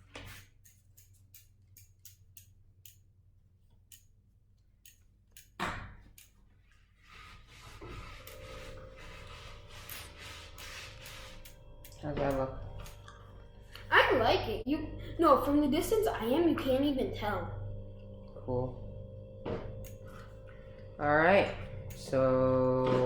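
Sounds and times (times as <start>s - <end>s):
light clicks and ticks: 3.7s - 5.6s.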